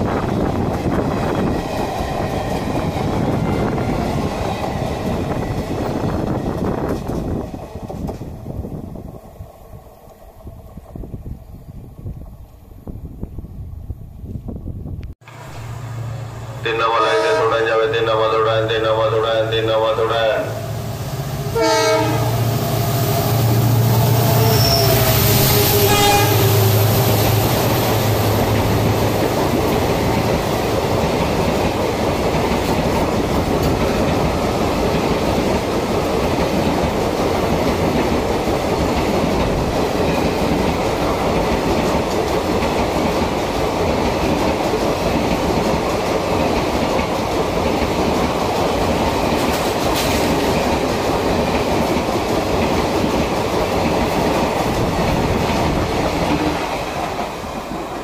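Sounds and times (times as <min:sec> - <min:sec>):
coaches rumbling on rails: 0:00.0 - 0:58.0
train horn: 0:16.4 - 0:17.9, 0:21.4 - 0:23.3, 0:24.2 - 0:26.8, 0:56.3 - 0:56.7.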